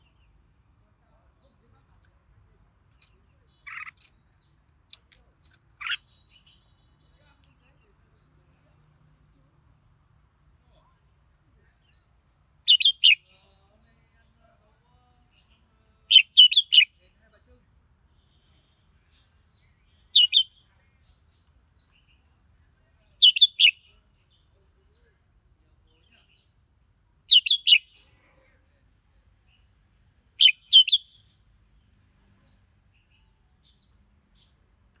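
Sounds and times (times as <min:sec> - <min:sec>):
bird singing clear notes: 0:03.0 - 0:07.2, 0:12.7 - 0:13.2, 0:16.1 - 0:16.9, 0:20.1 - 0:20.6, 0:23.2 - 0:23.8, 0:27.3 - 0:27.9, 0:30.4 - 0:31.2.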